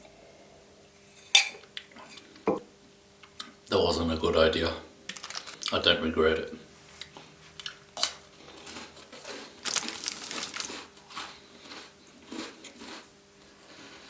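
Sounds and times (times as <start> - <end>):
chewing crunchy biscuits: 5.1 - 5.9, 7.0 - 14.0.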